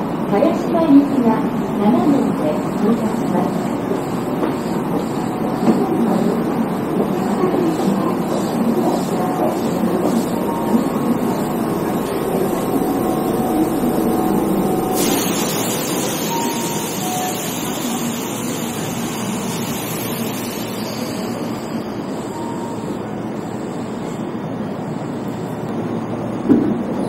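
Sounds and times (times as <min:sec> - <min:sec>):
train wheels rumbling: 0:00.0 - 0:23.9
bright hiss: 0:10.3 - 0:21.8.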